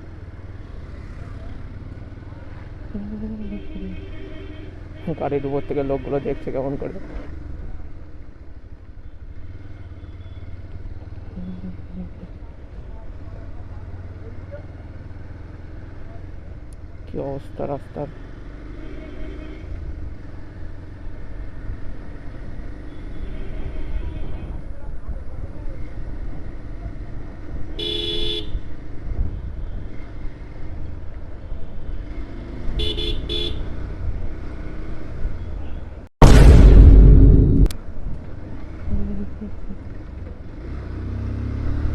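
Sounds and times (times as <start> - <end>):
motorcycle low rumble: 0.0 - 4.2, 10.6 - 17.2, 36.2 - 40.6
road and wind noise: 0.0 - 41.9
vehicle horn toots: 27.8 - 28.6, 32.8 - 33.7.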